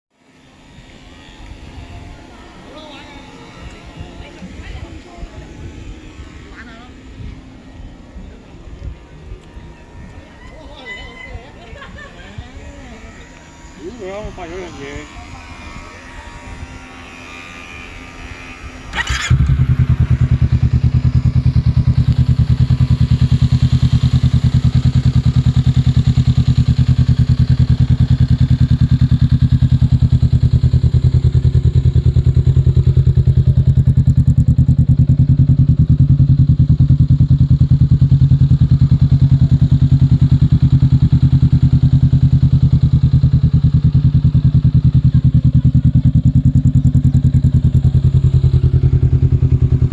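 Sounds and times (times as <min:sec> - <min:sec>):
motorcycle engine starting and idling: 0:17.4 - 0:49.9.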